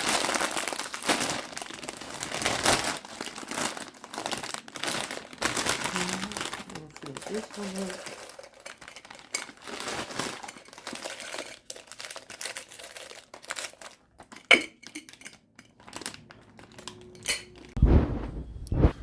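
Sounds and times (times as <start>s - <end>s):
packaging crinkling and rustling: 0.0s - 17.8s
low bump: 17.8s - 19.0s.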